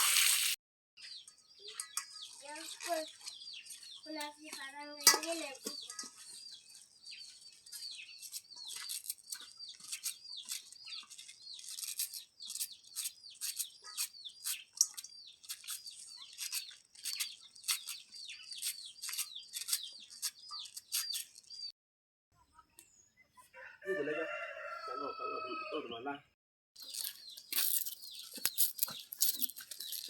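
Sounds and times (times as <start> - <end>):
chicks peeping: 1.0 - 4.9, 5.8 - 11.7, 12.4 - 21.7.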